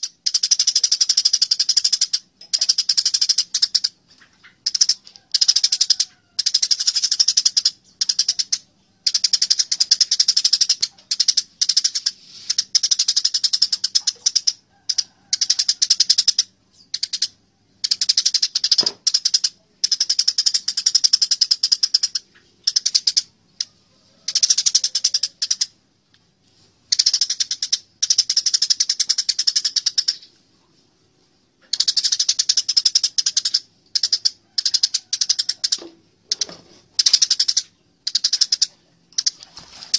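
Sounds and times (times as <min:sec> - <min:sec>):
sparrows harsh chirping: 0:00.0 - 0:23.6.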